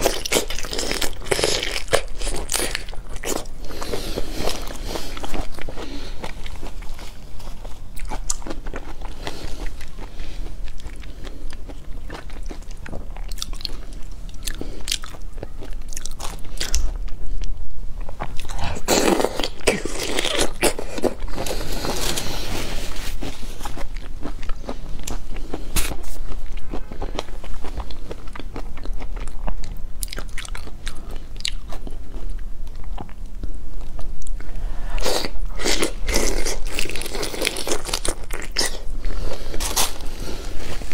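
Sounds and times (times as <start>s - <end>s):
chewing raw shrimp: 0.0s - 22.0s, 23.2s - 33.4s, 35.0s - 40.9s.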